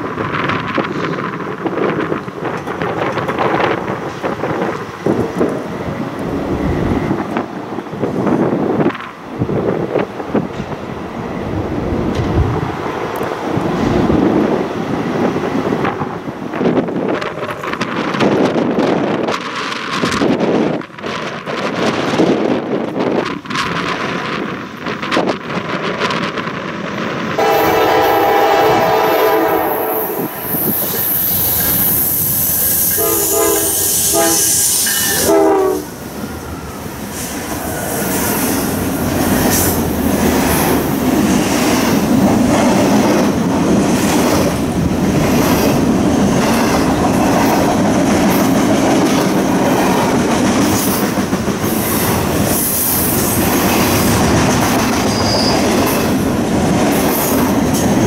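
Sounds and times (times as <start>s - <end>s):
wheels clacking over rail joints: 0.0s - 6.3s
train rumbling past: 0.0s - 58.0s
train air horn blasts: 27.4s - 30.3s, 32.8s - 35.9s.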